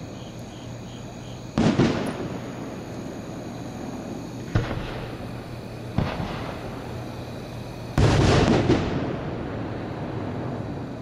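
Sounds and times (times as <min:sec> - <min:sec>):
fireworks bangs: 0:01.5 - 0:03.2, 0:03.8 - 0:11.0.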